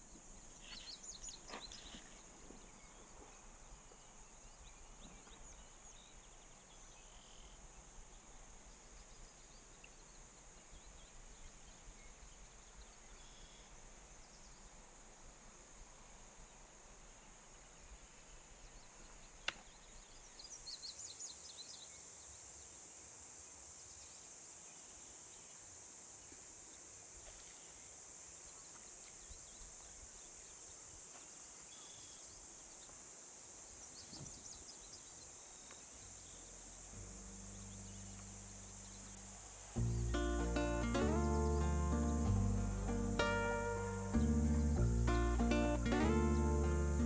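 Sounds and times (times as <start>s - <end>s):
high insect buzz: 20.2s - 47.0s
bird chirps: 33.8s - 47.0s.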